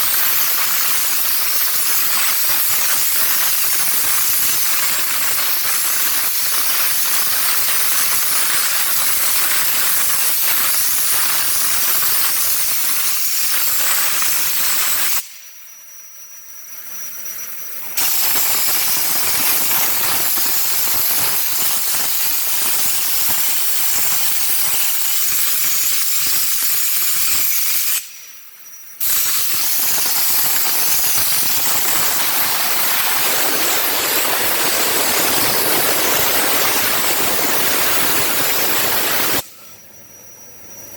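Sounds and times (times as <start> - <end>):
spray gun hissing: 18.0 - 24.5, 29.0 - 39.5.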